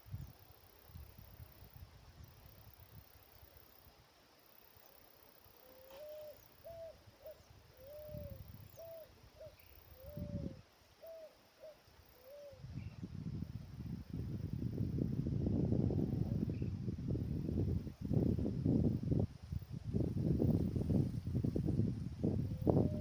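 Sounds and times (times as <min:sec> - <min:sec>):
bird hooting: 0:05.6 - 0:12.7.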